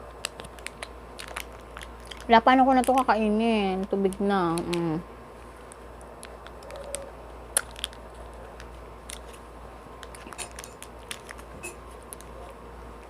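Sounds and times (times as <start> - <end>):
low steady hum: 0.0 - 13.0
small clicks and taps eating: 0.1 - 3.2, 3.8 - 4.8.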